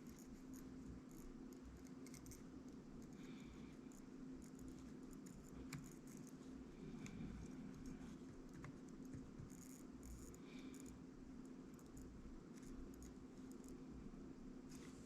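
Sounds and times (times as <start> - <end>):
small tool clicks and scratches: 0.0 - 3.3, 3.9 - 6.4, 7.0 - 11.0, 11.7 - 13.8
faint steady hum: 0.0 - 15.0.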